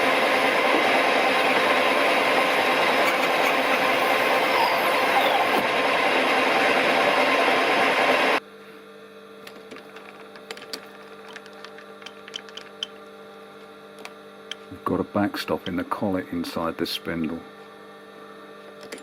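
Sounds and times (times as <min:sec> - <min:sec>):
lathe running: 0:00.0 - 0:08.4, 0:09.4 - 0:14.8
electrical hum: 0:00.0 - 0:19.0.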